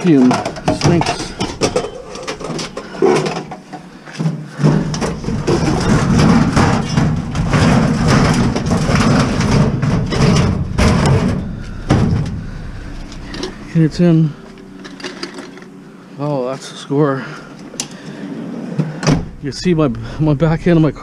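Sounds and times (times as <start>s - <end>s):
heavy tank scraping and bumping: 0.0s - 3.9s, 4.5s - 15.7s.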